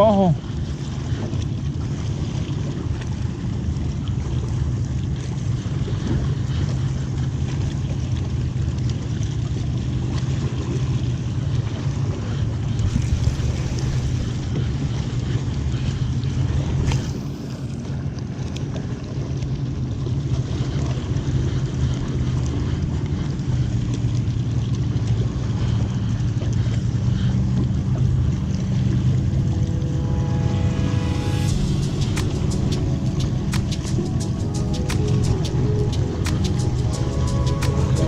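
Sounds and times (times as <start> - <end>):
motorboat engine droning: 0.0 - 38.0
music: 29.0 - 38.0.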